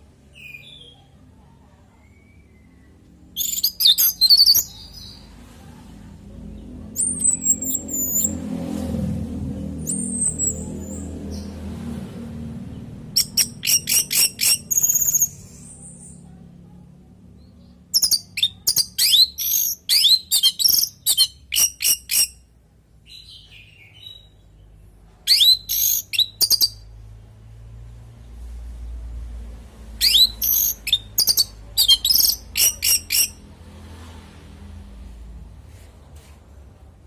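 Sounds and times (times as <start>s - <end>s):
faint low rumble: 0.0s - 18.6s, 26.3s - 32.6s.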